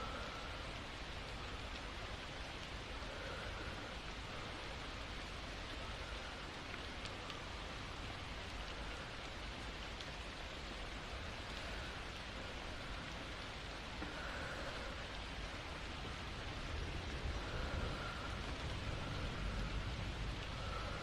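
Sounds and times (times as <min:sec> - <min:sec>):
steady rain hiss: 0:00.0 - 0:21.0
single raindrop ticks: 0:08.4 - 0:10.4.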